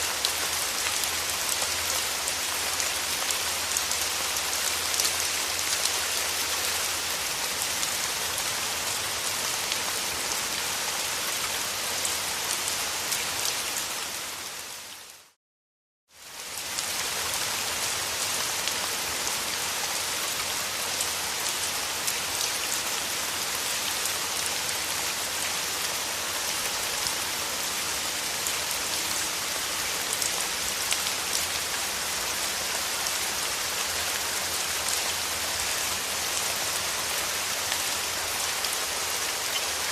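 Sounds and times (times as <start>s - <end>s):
steady rain falling: 0.0s - 15.4s, 16.1s - 39.9s.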